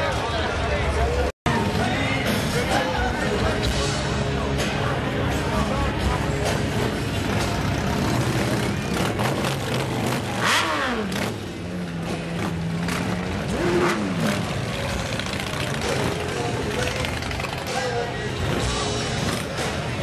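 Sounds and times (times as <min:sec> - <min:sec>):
street background noise: 0:00.0 - 0:20.0
motorcycle engine revving: 0:06.4 - 0:20.0.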